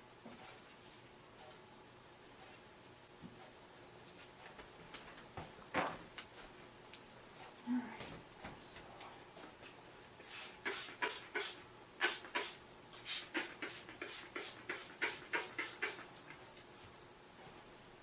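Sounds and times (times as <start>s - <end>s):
spray bottle hisses: 10.2s - 16.1s.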